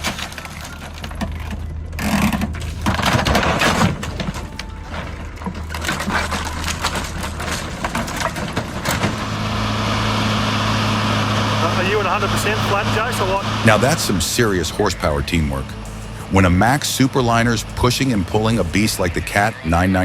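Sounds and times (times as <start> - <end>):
clattering and crunching knocks: 0.0 - 9.3
heavy machinery engine humming: 0.0 - 20.0.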